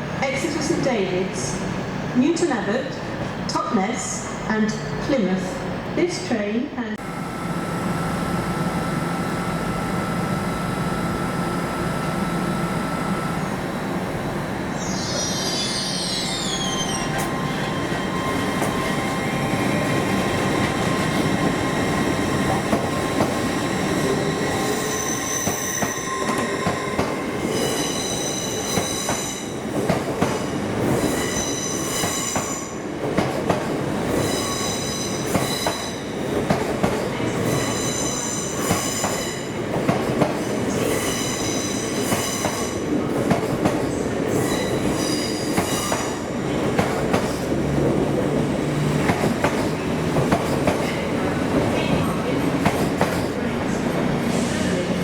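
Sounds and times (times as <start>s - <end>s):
train wheels squealing: 14.8s - 29.6s, 30.9s - 32.8s, 34.1s - 36.1s, 37.4s - 39.6s, 40.8s - 42.8s, 44.3s - 46.2s
train rumble: 16.0s - 34.6s, 38.5s - 55.0s.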